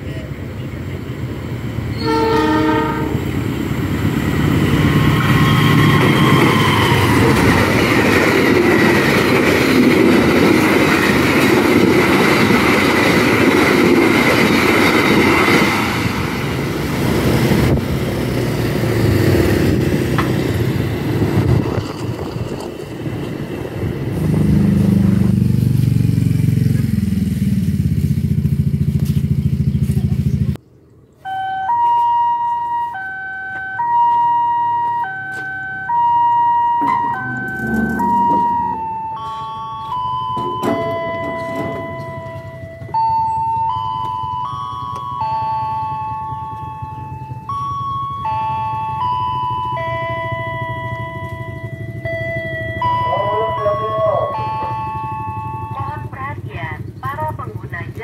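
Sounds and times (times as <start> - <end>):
train wheels rumbling on rails: 0.0 - 30.6, 34.8 - 58.0
low wavering engine: 16.1 - 30.6, 35.1 - 58.0
brief pitched tone: 31.2 - 56.1.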